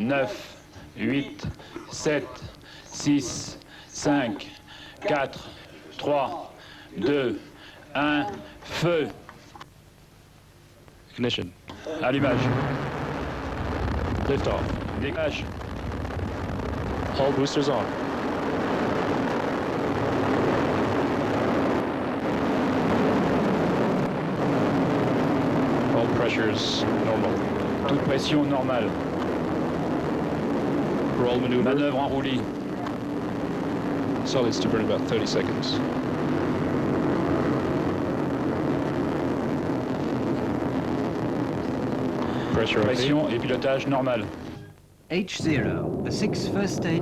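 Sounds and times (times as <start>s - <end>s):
rocket engines firing: 12.1s - 44.6s, 45.4s - 47.0s.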